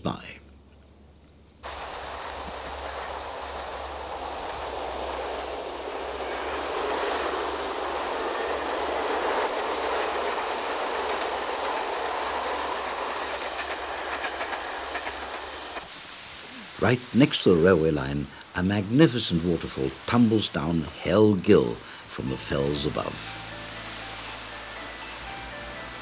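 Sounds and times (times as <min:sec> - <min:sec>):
train running: 0:01.6 - 0:26.0
train wheel clicks: 0:01.7 - 0:15.9.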